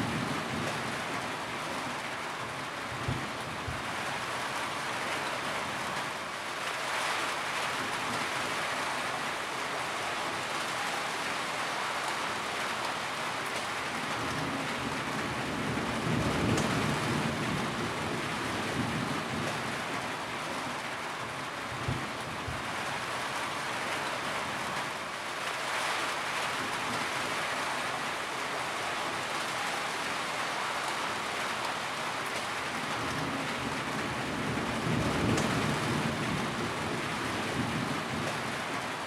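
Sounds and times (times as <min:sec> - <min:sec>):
thunder rumbling: 0:14.2 - 0:19.6, 0:33.0 - 0:38.7.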